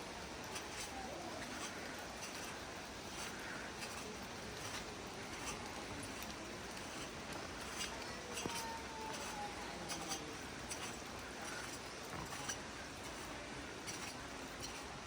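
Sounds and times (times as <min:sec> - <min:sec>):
steady outdoor hiss: 0:00.0 - 0:15.0
footsteps walking: 0:03.1 - 0:14.9.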